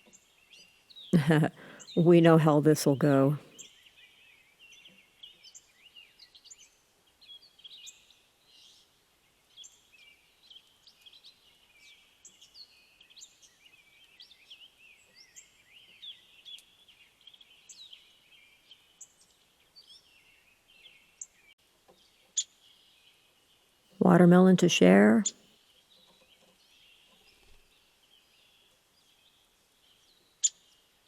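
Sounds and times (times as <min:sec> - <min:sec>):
faint songbird chorus: 0:00.0 - 0:02.0, 0:03.6 - 0:23.8, 0:25.6 - 0:30.9.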